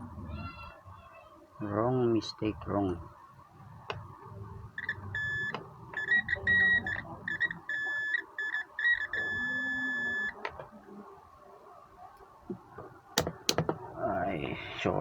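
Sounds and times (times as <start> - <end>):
multimeter continuity beeps: 4.8 - 10.4.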